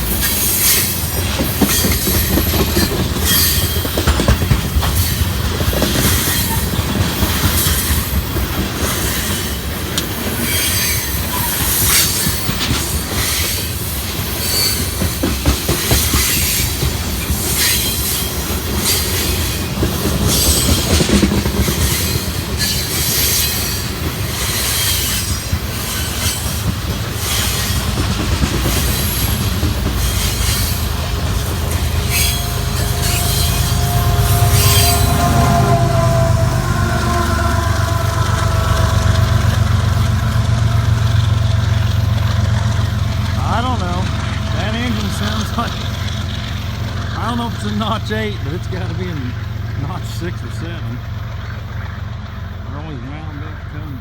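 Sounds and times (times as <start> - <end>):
high wheel squeals: 0.0 - 27.9, 28.6 - 42.0
train wheels rumbling on rail: 0.0 - 54.0
wheels clicking over rail joints: 0.0 - 54.0.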